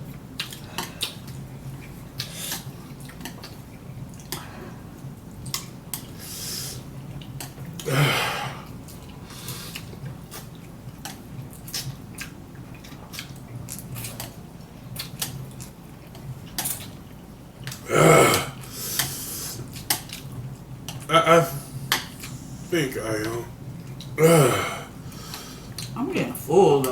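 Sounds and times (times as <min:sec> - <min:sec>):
wet chewing and smacking: 0:00.0 - 0:06.2, 0:06.8 - 0:07.9, 0:08.6 - 0:17.8, 0:19.0 - 0:21.1, 0:23.1 - 0:24.2, 0:24.9 - 0:26.0
breathy burst: 0:07.9 - 0:08.7, 0:24.2 - 0:25.7.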